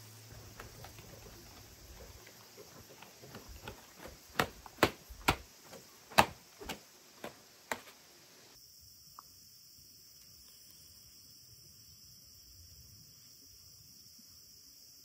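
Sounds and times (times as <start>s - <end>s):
sharp irregular knocks: 0.4s - 8.1s.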